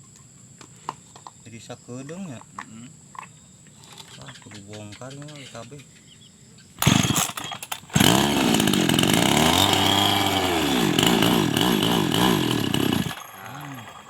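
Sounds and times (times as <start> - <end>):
motorcycle engine starting and revving: 6.8 - 14.0.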